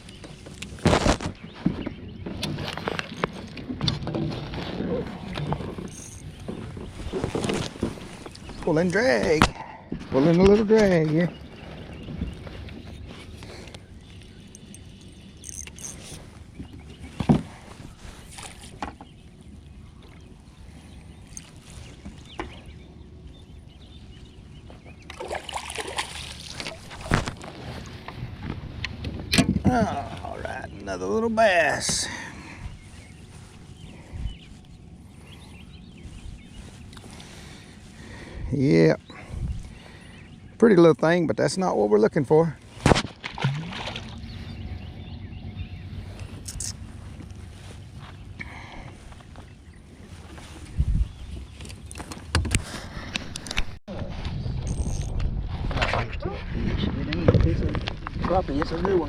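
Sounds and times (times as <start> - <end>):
boat engine humming: 0.0 - 10.0, 10.8 - 53.8
light water noise: 24.1 - 29.0, 42.6 - 44.9
fish splashing: 25.1 - 27.1
steady low rumble: 32.0 - 40.6, 42.4 - 59.0.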